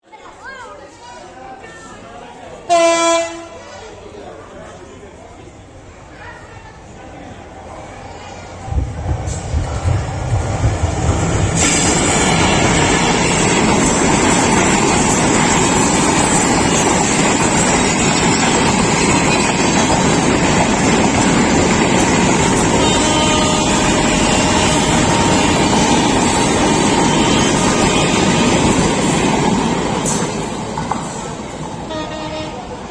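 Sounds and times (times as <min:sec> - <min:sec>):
train rushing at speed: 0:02.7 - 0:32.9.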